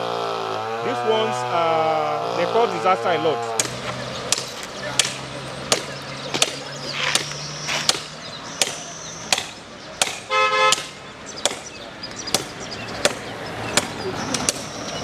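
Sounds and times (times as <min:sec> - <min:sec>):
car horn: 0:10.3 - 0:10.8.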